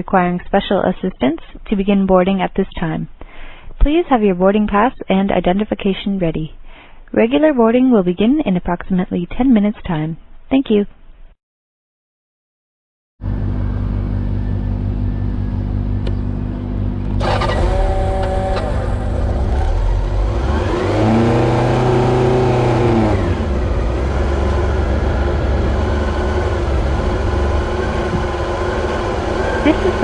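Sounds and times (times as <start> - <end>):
motorcycle engine running: 13.2 - 30.0.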